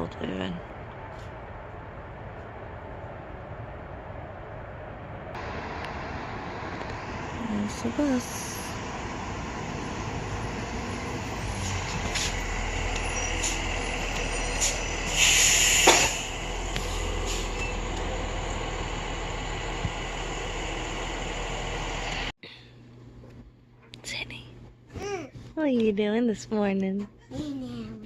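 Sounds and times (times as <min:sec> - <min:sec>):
bus engine rumble: 0:00.0 - 0:22.3
air brakes hissing: 0:10.0 - 0:17.9.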